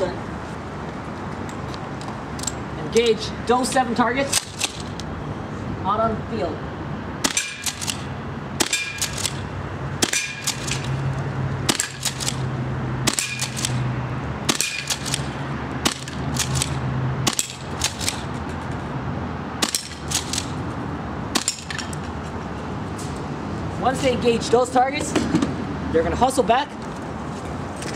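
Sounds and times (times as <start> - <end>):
airsoft shotgun shots: 7.2 - 8.0, 8.6 - 9.4, 10.0 - 10.9, 13.1 - 13.8, 14.5 - 18.2
metallic clatter of bbs on targets: 7.2 - 9.4, 10.0 - 11.0, 11.7 - 12.4, 13.1 - 13.8, 14.5 - 18.3, 19.6 - 20.6, 21.4 - 22.0.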